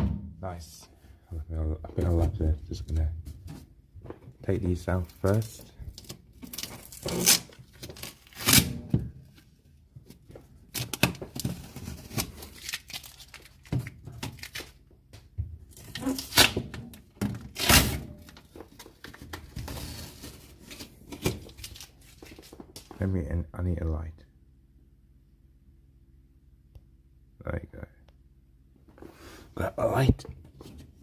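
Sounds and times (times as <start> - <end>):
packing material tearing: 5.0 - 8.8, 10.7 - 14.8, 15.7 - 16.7, 17.5 - 18.9.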